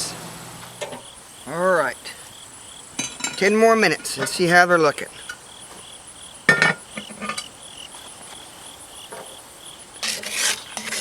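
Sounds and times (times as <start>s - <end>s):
crickets chirping: 0.0s - 11.0s
metallic lid clink: 3.0s - 4.4s, 6.5s - 7.5s.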